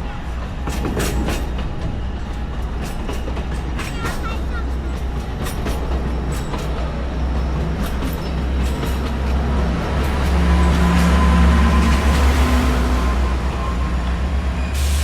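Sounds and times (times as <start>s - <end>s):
diesel locomotive rumbling: 0.0s - 15.0s.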